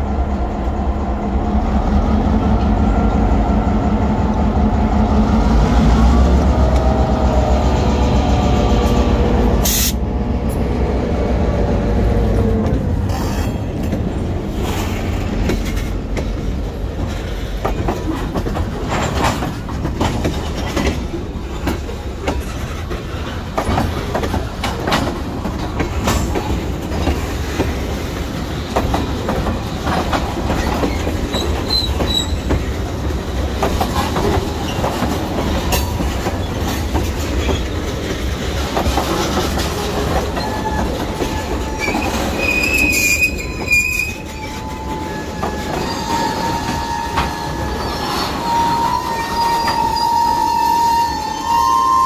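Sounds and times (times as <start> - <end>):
steel wheels rumbling on rail: 0.0 - 52.0
wheels clicking over rail joints: 12.5 - 50.2
high wheel squeal: 30.8 - 32.5, 40.3 - 52.0.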